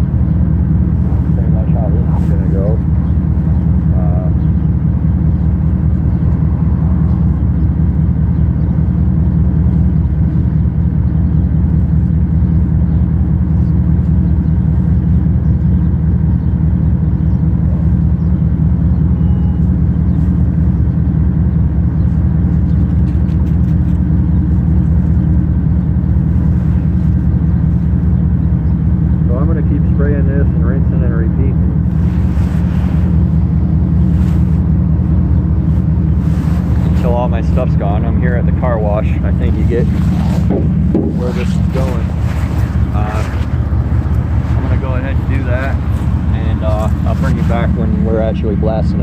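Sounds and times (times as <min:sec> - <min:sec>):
engine rumbling: 0:00.0 - 0:49.0.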